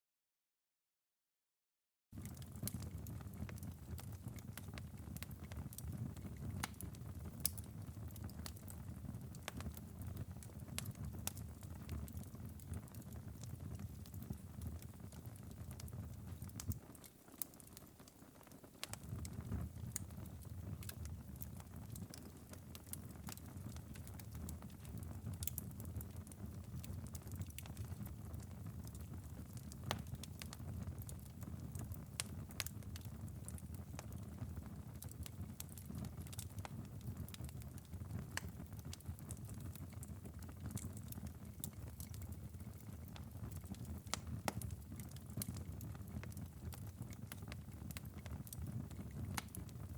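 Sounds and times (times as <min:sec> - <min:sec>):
low fire rumble: 0:02.2 - 0:18.1, 0:18.8 - 0:49.9
wood fire crackling and popping: 0:02.2 - 0:49.9.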